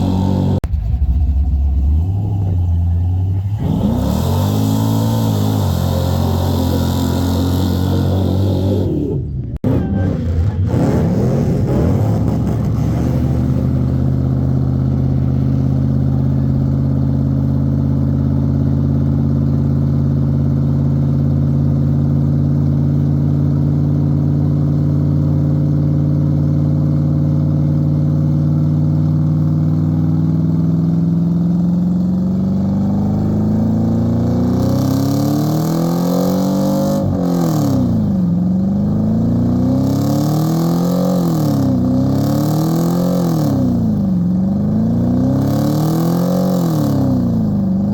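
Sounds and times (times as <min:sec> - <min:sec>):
truck engine droning and revving: 0:00.0 - 0:47.9.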